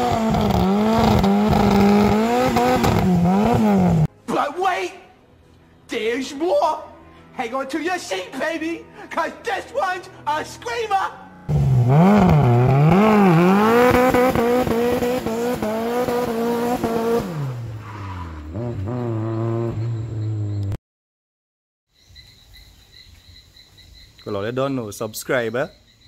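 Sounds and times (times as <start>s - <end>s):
car engine revving: 0.0s - 4.1s, 11.5s - 20.8s
tyre squeal: 17.8s - 20.7s
faint crickets: 19.2s - 20.7s, 21.9s - 26.0s.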